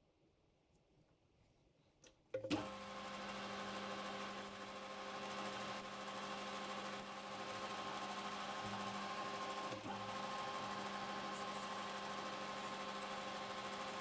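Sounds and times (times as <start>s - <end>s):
metal lathe motor humming: 2.9s - 14.0s.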